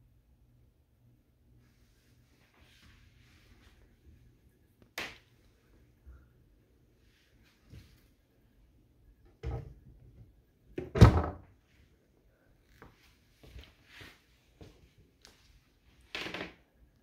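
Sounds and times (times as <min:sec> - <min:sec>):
cabinet door thunk: 0:10.8 - 0:11.4.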